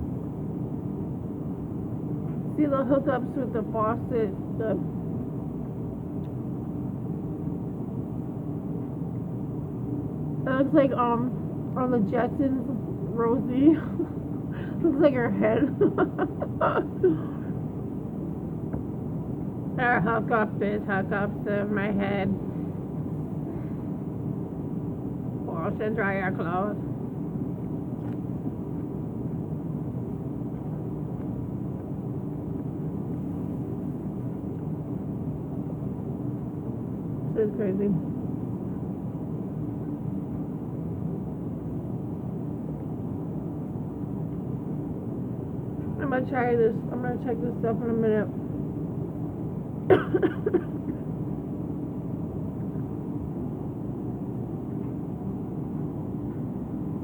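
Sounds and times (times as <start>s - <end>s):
washer-dryer machine drone: 0.0s - 0.6s, 10.0s - 38.0s.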